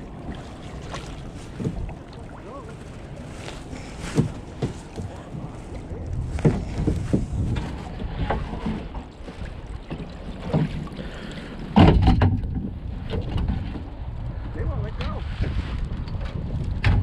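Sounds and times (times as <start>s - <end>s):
wind noise on microphone: 0.0s - 10.9s, 11.7s - 17.0s
water splashes: 0.0s - 14.0s
knocks on a kayak: 11.8s - 12.7s.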